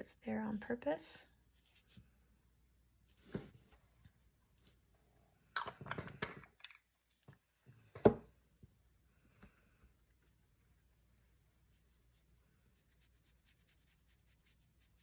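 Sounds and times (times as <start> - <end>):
brush and tool rubbing: 9.8 - 15.0.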